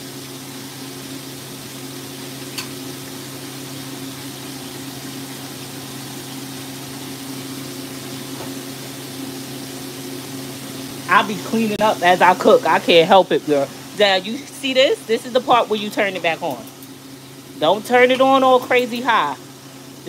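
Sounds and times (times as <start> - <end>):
chicken sizzling in oil: 0.0 - 20.0.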